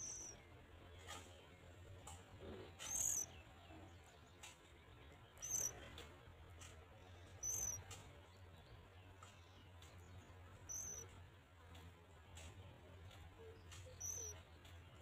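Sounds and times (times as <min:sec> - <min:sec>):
high thin bird calls: 0:00.0 - 0:00.4, 0:02.8 - 0:03.3, 0:05.4 - 0:05.7, 0:07.4 - 0:07.9, 0:10.6 - 0:11.1, 0:13.8 - 0:14.4.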